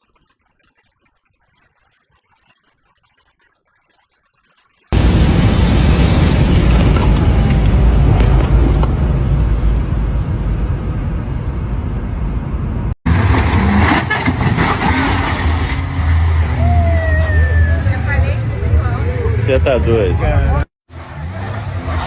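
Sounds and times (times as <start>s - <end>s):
vehicle and road noise: 4.9s - 22.0s
low engine hum: 5.0s - 14.6s.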